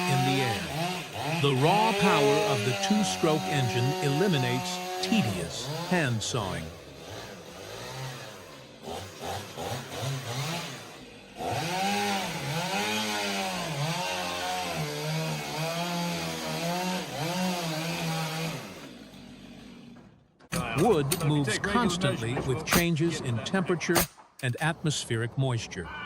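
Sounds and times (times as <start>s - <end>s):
chain cutting through wood: 0.0s - 20.0s
chainsaw engine: 0.0s - 20.2s.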